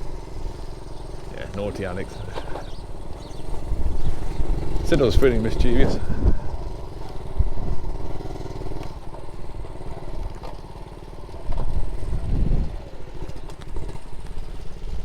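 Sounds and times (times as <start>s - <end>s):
small motorbike engine running: 0.0s - 15.0s.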